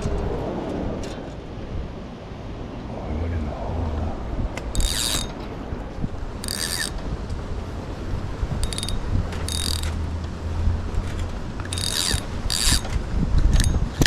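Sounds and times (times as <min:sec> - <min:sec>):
steady low rumble: 0:00.0 - 0:14.0
fishing reel ratcheting: 0:04.7 - 0:05.4, 0:06.4 - 0:07.0, 0:08.6 - 0:10.1, 0:11.6 - 0:14.0.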